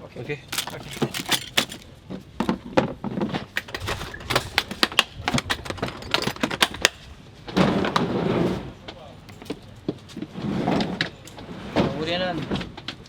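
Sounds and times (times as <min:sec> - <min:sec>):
tools clicking and clattering: 0:00.4 - 0:02.6, 0:03.5 - 0:07.0.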